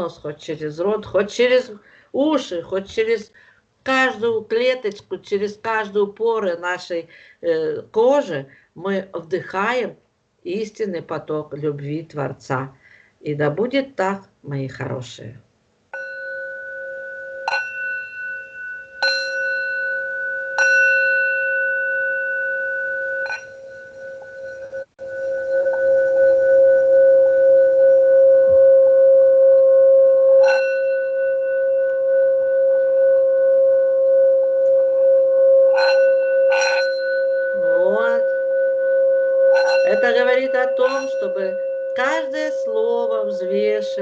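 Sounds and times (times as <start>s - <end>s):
singing bowl struck: 16.0s - 27.9s, 30.1s - 43.8s
singing bowl rubbed round rim: 16.0s - 44.0s.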